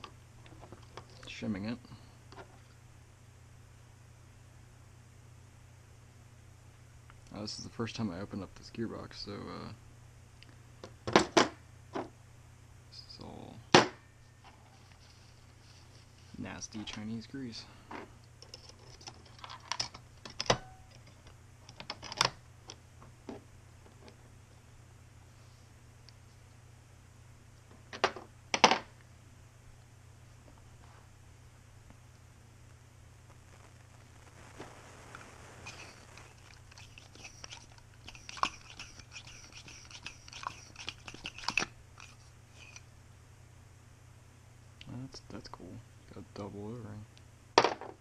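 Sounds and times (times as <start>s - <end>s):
faint low hum: 0.0s - 48.0s
small hard parts clicking and knocking: 18.4s - 22.8s, 35.7s - 42.8s.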